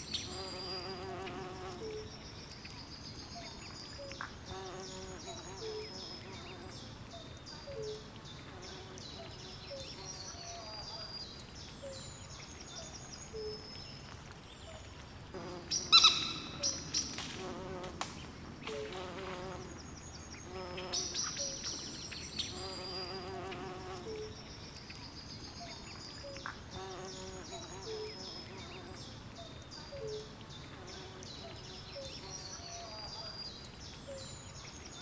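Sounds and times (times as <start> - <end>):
faint steady hiss: 0.0 - 35.0.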